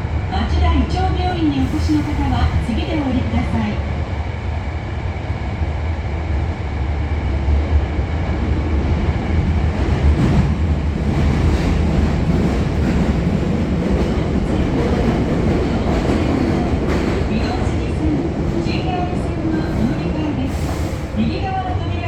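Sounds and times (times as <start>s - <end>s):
subway train rumbling: 0.0s - 22.0s.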